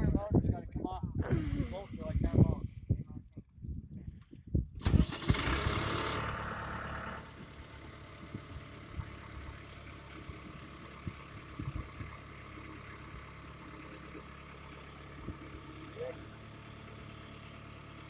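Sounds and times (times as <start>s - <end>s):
engine idling: 4.8s - 18.0s.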